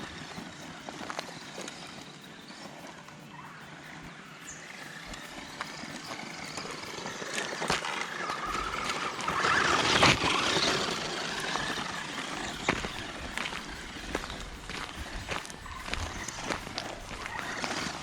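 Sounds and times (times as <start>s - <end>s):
sharp clicks: 0.0s - 18.0s
toy car clattering: 0.0s - 18.0s
electric motor whining: 3.7s - 18.0s.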